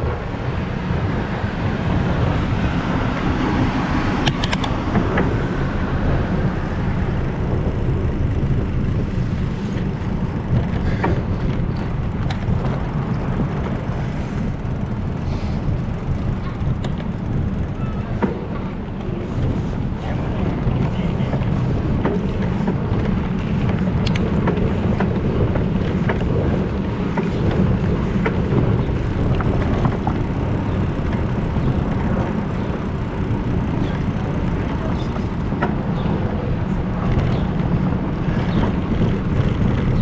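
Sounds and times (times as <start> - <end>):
bicycle rolling and wind rumble: 0.0 - 40.0.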